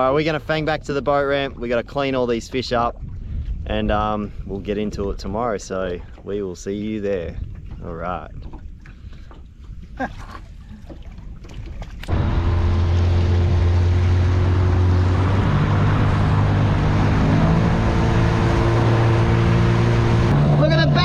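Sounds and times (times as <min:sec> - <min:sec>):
wind noise: 0:00.0 - 0:21.0
outboard motor running: 0:07.6 - 0:21.0
rushing water: 0:10.0 - 0:21.0.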